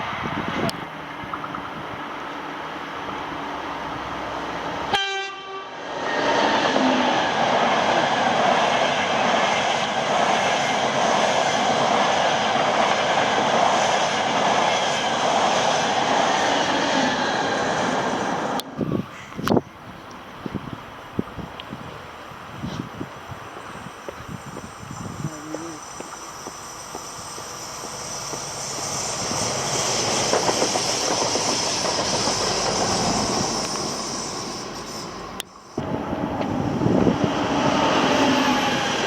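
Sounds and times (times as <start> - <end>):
train passing at speed: 0.0 - 39.0
train horn blast: 4.9 - 5.8.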